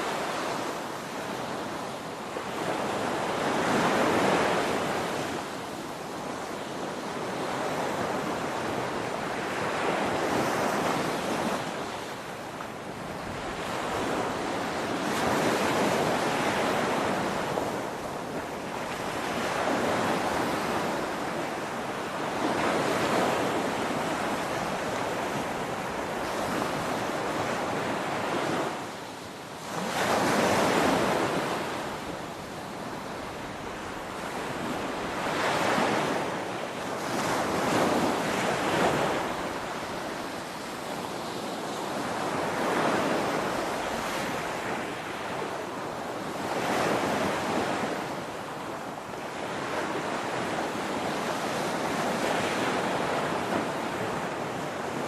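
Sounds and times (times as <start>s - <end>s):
ocean waves crashing: 29.8s - 40.6s.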